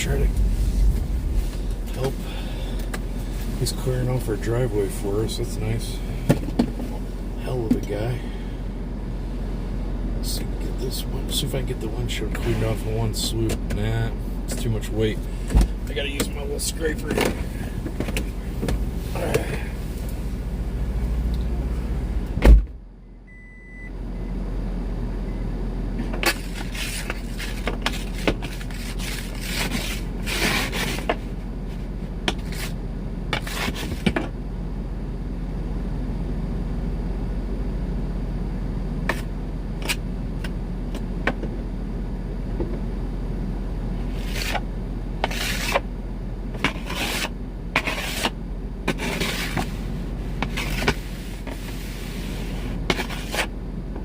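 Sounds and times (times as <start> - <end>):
car engine humming: 0.0 - 54.0
ice scraper scraping windshield: 26.2 - 31.2, 33.4 - 34.2, 44.1 - 44.6, 45.2 - 45.9, 46.6 - 53.5.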